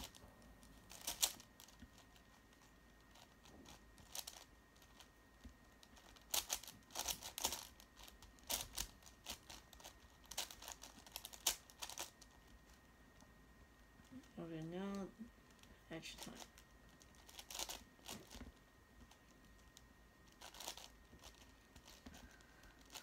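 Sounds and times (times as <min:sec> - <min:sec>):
puzzle cube clicking: 0:00.8 - 0:02.3, 0:05.9 - 0:12.6, 0:16.4 - 0:23.0.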